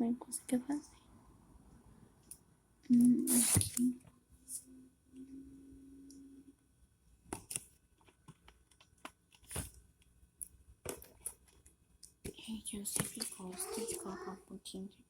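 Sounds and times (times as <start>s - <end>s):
faint steady hum: 0.0s - 8.8s
clicks and rustles of handling: 7.3s - 14.1s.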